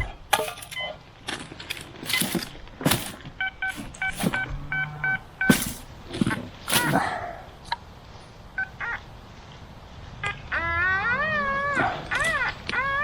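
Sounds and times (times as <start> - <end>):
metal detector beeps: 0.0 - 1.0, 2.1 - 5.9
handling knocks and rustles: 0.0 - 4.8, 5.4 - 7.1.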